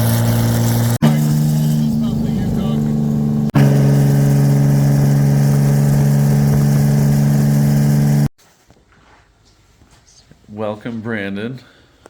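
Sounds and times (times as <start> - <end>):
vehicle engine running: 0.0 - 8.3.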